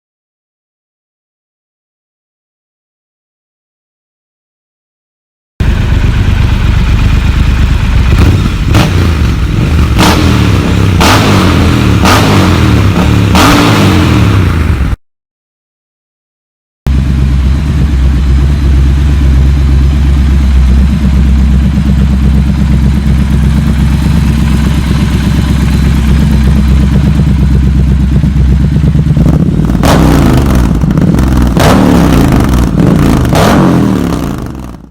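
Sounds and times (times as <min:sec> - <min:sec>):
motorcycle engine idling and revving: 0:05.6 - 0:15.0, 0:16.9 - 0:34.9.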